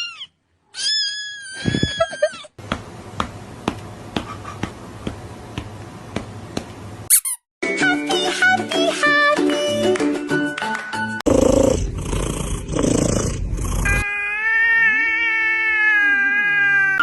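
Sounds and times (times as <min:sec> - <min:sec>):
cat meowing: 0:00.0 - 0:02.4, 0:13.9 - 0:17.0.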